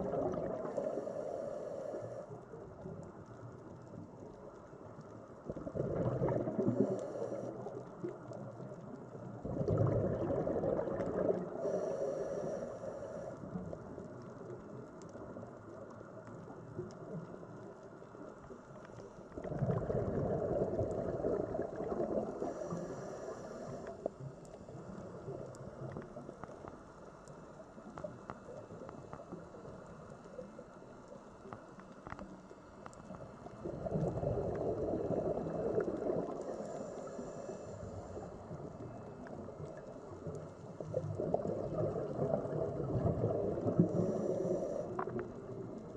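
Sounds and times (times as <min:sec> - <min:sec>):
small clicks: 0:23.3 - 0:34.0.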